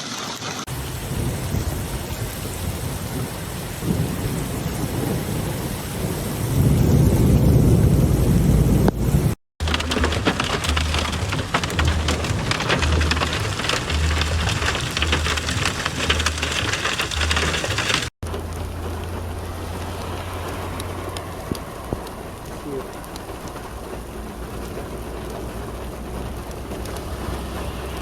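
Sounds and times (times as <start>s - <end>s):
heavy rain pelting: 0.0s - 28.0s.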